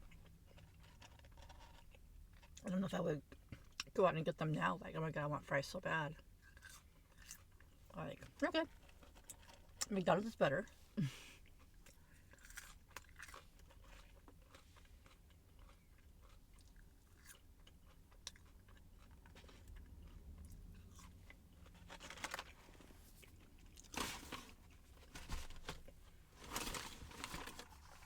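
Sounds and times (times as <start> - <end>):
chewing crunchy food: 0.0 - 3.9, 6.1 - 9.9, 11.4 - 25.1.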